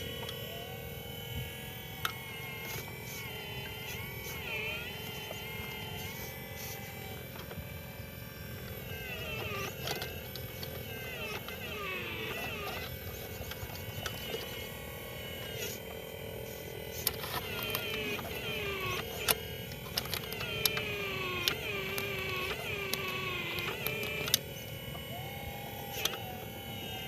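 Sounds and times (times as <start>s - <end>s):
electric motors whining: 0.0s - 27.0s
sharp clicks: 17.0s - 25.2s.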